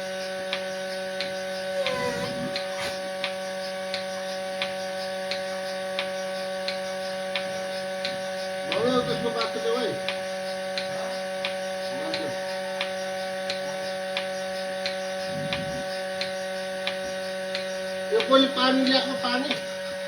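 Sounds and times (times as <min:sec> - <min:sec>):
electric machine hum: 0:00.0 - 0:20.0
voice-like call: 0:01.7 - 0:03.1, 0:08.7 - 0:10.0, 0:11.8 - 0:12.4.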